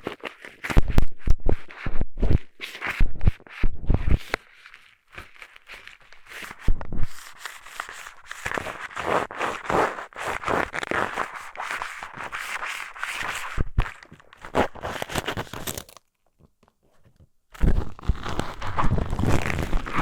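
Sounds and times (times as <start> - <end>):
eyeglasses rubbing on microphone: 17.6 - 20.0.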